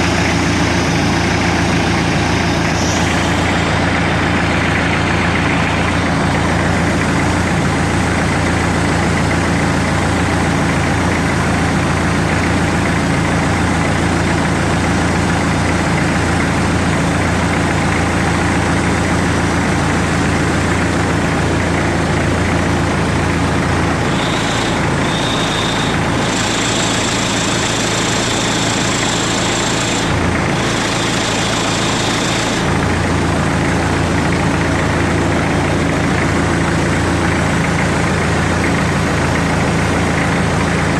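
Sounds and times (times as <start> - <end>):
high whine: 0.0 - 7.5, 23.9 - 32.8
diesel engine idling: 0.0 - 40.9.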